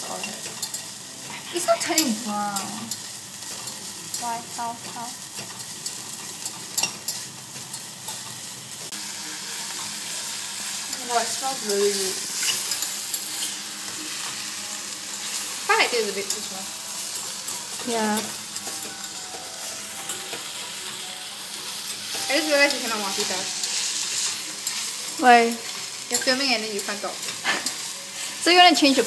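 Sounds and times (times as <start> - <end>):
sausage and onion sizzling: 0.0 - 29.0
metal turner scraping pot: 11.4 - 13.6.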